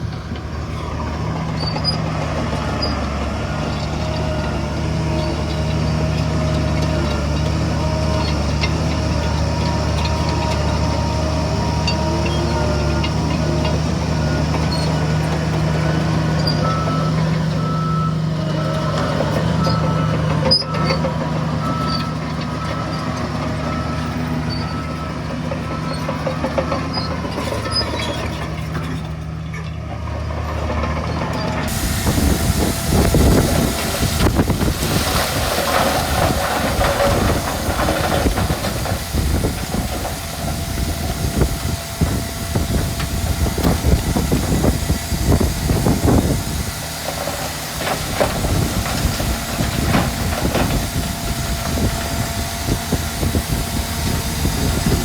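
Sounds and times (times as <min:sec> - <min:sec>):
heavy diesel machinery running: 0:00.0 - 0:55.0
rough rumbling and clatter of machinery: 0:00.0 - 0:55.0
reversing alarm beeping: 0:09.8 - 0:26.0.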